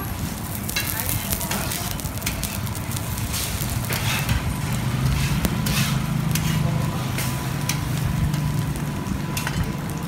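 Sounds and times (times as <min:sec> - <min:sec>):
flatbread sizzling on a griddle: 0:00.0 - 0:10.0
metal spatula scraping a griddle: 0:00.6 - 0:08.5.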